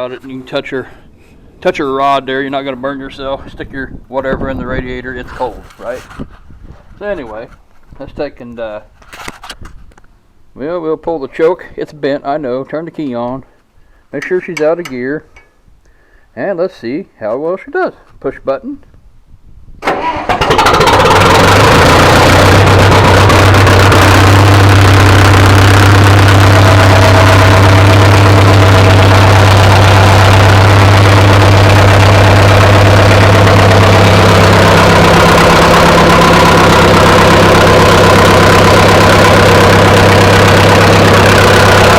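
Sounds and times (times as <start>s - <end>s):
tractor engine idling: 19.9s - 41.9s.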